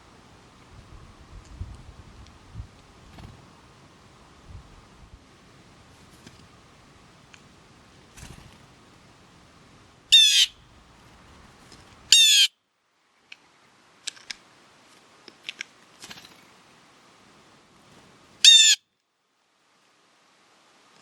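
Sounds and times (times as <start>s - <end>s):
bird giving harsh calls: 10.1s - 10.7s, 12.1s - 12.5s, 18.4s - 18.8s.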